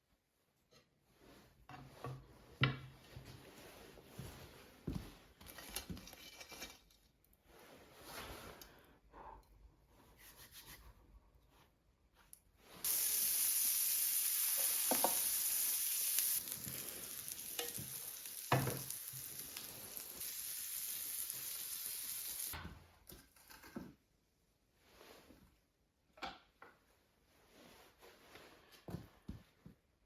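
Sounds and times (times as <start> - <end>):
loud sizzling hiss: 12.8 - 22.6.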